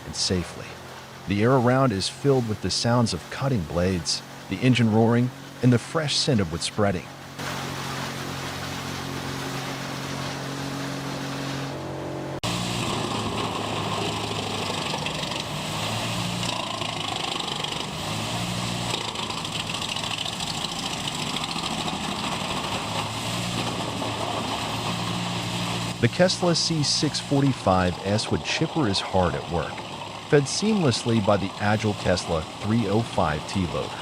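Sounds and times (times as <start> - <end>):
noisy rush: 0.0 - 34.0
wood chipper engine: 7.2 - 34.0.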